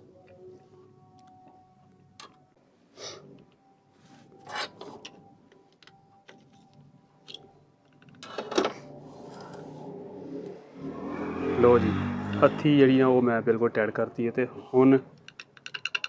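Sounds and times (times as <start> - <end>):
metal clicks and knocks: 15.2 - 16.0.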